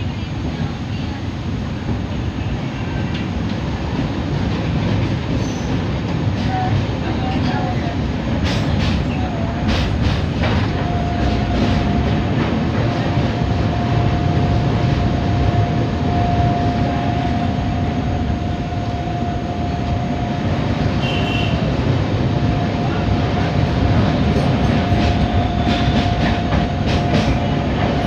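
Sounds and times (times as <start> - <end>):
train wheels rumbling on rails: 0.0 - 28.0
steady high whine: 10.7 - 28.0.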